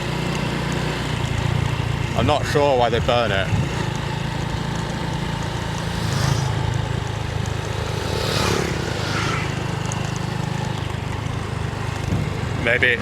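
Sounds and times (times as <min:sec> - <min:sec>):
vehicle engine running: 0:00.0 - 0:13.0
brief rushing noises: 0:07.9 - 0:09.8.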